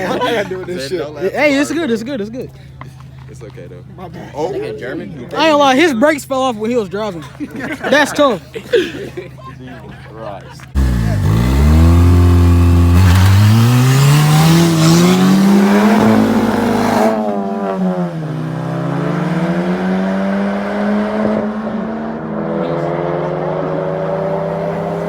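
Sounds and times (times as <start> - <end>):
car engine revving: 10.8 - 25.0.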